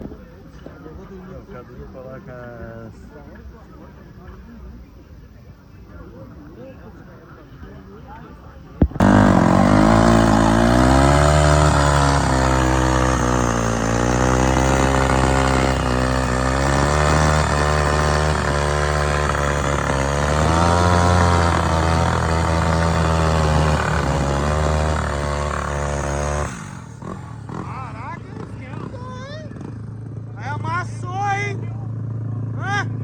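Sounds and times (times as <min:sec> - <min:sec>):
motorcycle engines revving: 0:08.8 - 0:33.0.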